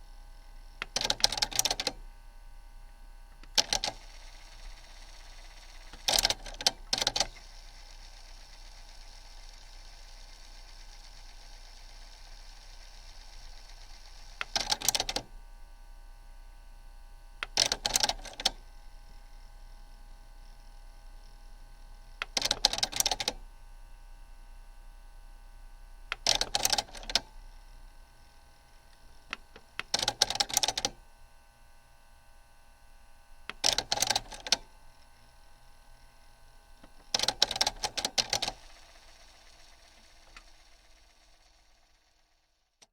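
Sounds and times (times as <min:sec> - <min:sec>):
faint steady hum: 0:00.0 - 0:42.9
cassette deck mechanism clicking: 0:00.8 - 0:02.0, 0:03.4 - 0:04.0, 0:05.9 - 0:07.4, 0:14.4 - 0:15.2, 0:17.4 - 0:18.6, 0:22.2 - 0:23.4, 0:26.1 - 0:27.2, 0:28.9 - 0:31.0, 0:33.5 - 0:34.6, 0:36.8 - 0:38.7.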